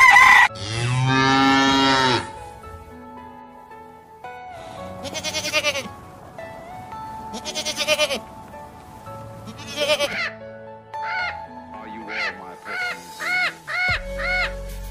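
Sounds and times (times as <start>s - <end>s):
background music with sustained notes: 0.0s - 14.9s
young goat bleating: 5.0s - 5.9s, 7.3s - 8.3s, 9.4s - 10.3s.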